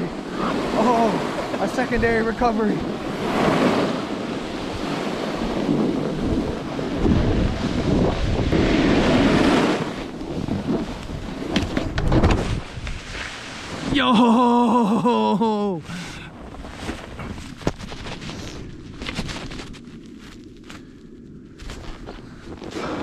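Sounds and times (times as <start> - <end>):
wind buffeting microphone: 0.0 - 14.0
snowboard scraping on snow: 0.1 - 14.1, 16.4 - 20.8, 21.6 - 23.0.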